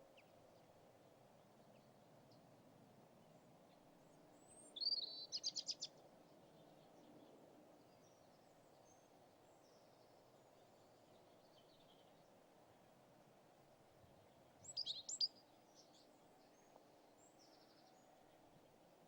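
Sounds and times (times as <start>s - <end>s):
faint bird chirps: 4.5s - 5.9s, 14.6s - 18.1s.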